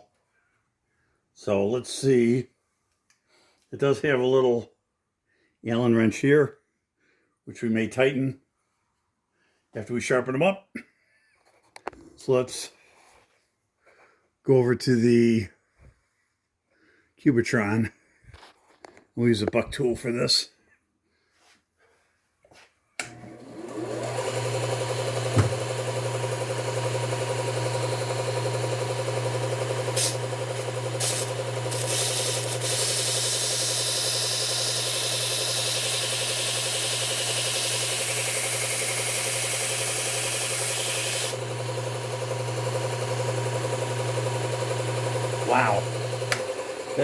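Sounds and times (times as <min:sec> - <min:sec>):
belt grinder humming: 0:23.0 - 0:47.0.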